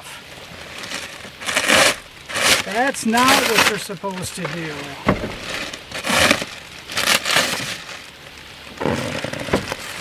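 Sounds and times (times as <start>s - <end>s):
plastic wrapping crinkling: 0.2s - 10.0s.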